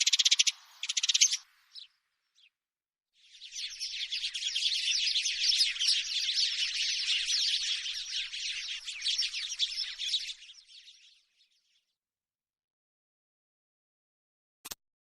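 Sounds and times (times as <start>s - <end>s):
sparrows chirping: 0.0s - 2.6s, 3.2s - 11.9s.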